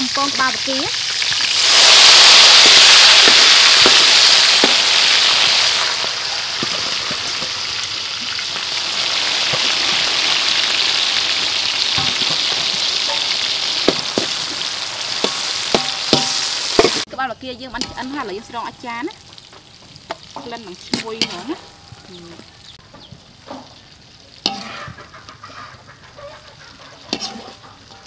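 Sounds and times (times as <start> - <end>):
shrimp sizzling in hot oil: 0.0 - 28.0
metal spoon knocking wok: 11.9 - 14.6, 15.2 - 17.1.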